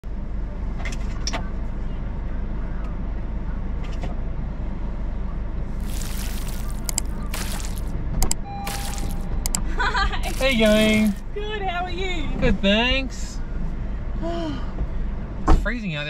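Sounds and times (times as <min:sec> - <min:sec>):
rustling: 0:05.8 - 0:07.9, 0:10.2 - 0:11.2.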